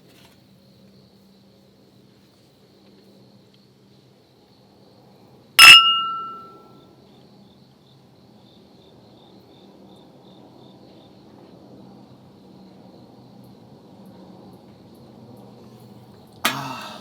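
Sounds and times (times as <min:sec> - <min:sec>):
crickets chirping: 0:00.0 - 0:06.6, 0:07.4 - 0:17.0
sharp clink of hard object: 0:05.6 - 0:06.6.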